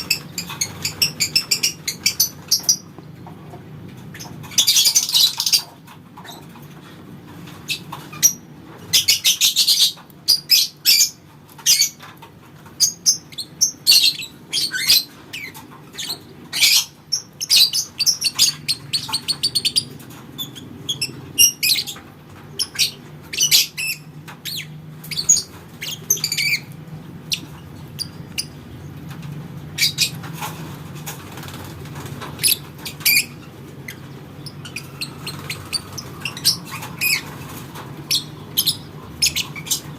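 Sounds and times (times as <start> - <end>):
lovebird chirps and trills: 0.0 - 2.9, 4.1 - 6.5, 32.4 - 39.9.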